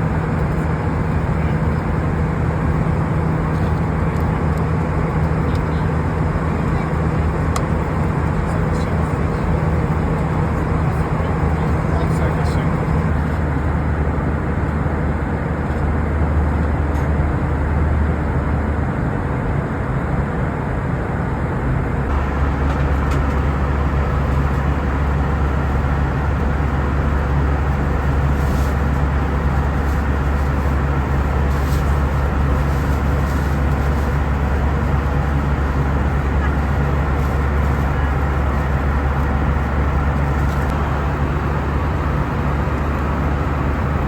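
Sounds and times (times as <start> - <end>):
airplane engines drone: 0.0 - 44.0
rushing airflow: 20.3 - 44.0.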